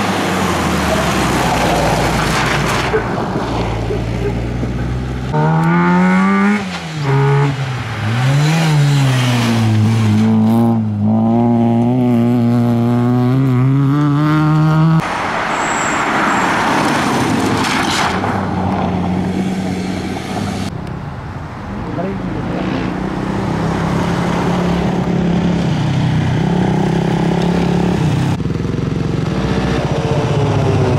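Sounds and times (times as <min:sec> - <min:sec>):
car engine revving: 0:00.0 - 0:15.1.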